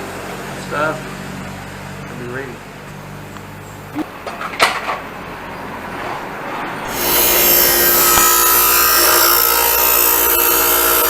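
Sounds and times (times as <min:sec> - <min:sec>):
bench grinder grinding steel: 0:06.8 - 0:11.0.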